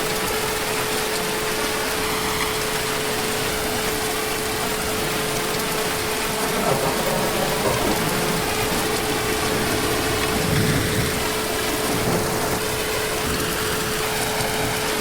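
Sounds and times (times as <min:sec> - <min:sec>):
heavy rain hissing: 0:00.0 - 0:15.0
distant thunder rumbles: 0:03.7 - 0:14.8.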